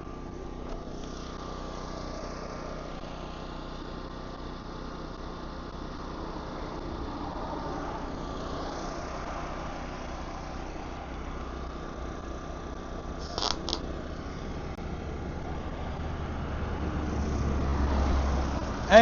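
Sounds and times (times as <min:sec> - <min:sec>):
engine running steadily: 0:00.0 - 0:19.0
constant hiss: 0:08.0 - 0:14.8
brief sharp hisses: 0:13.2 - 0:13.8.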